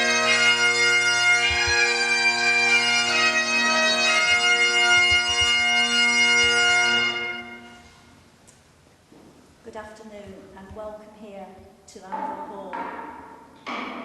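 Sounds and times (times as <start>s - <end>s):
bagpipes playing a tune: 0.0s - 8.0s.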